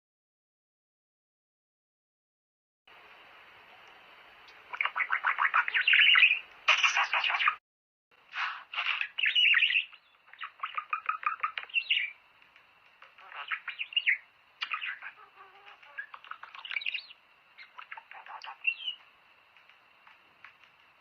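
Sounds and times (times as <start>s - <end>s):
budgerigars chattering and warbling: 4.5s - 7.6s, 8.4s - 12.2s, 13.0s - 19.0s.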